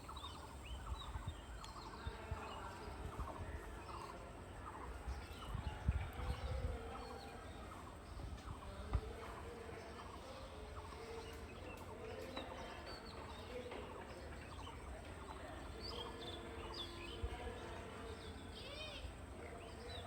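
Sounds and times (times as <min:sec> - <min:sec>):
birds chirping: 0:00.0 - 0:05.6
repeated low bird calls: 0:00.0 - 0:20.0.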